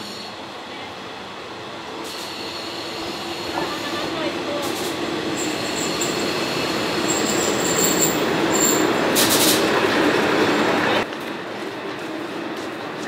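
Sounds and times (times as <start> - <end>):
train wheels on rail: 0.0 - 13.0
high wheel squeals: 5.4 - 9.0.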